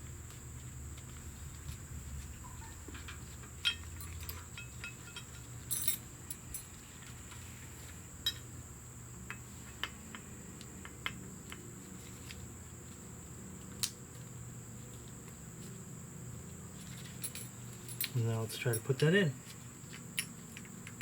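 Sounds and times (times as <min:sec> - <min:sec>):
steady low hum: 0:00.0 - 0:21.0
small metal parts clicking: 0:03.0 - 0:06.8.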